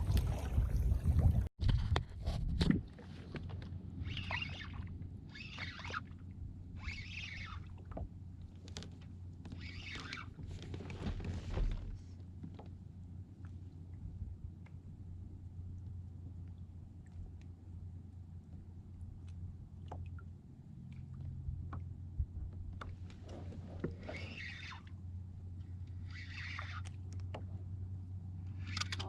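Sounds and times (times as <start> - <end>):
water splashing: 0.0 - 1.5
wind buffeting microphone: 0.0 - 3.0.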